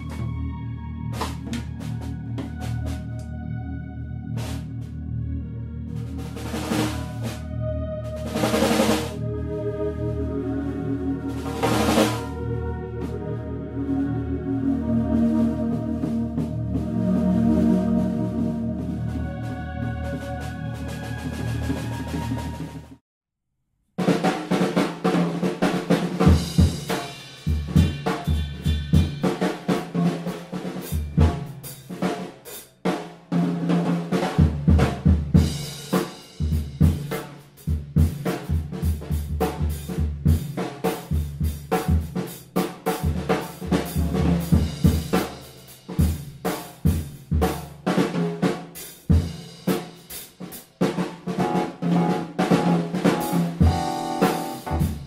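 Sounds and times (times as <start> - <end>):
music with drum kit: 0.0 - 0.3, 1.1 - 3.3, 4.4 - 4.7, 6.0 - 7.5, 8.1 - 9.2, 11.4 - 12.3, 24.0 - 55.0.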